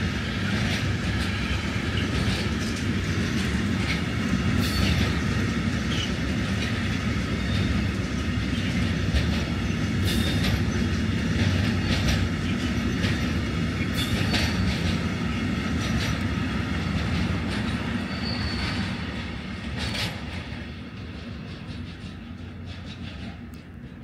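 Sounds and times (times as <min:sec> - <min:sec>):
train rumble: 0:00.0 - 0:24.0
wheels clacking over rail joints: 0:00.0 - 0:24.0
high squeal: 0:17.9 - 0:19.1.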